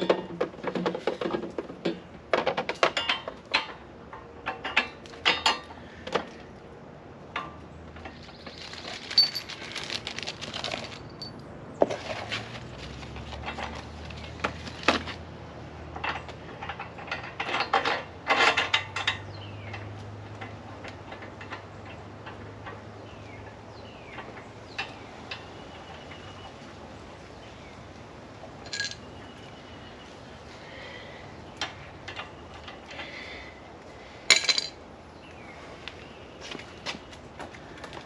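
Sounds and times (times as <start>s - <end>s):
handling clinks and knocks: 7.4s - 15.2s, 28.6s - 29.8s, 34.3s - 34.8s
rustling: 8.0s - 15.2s.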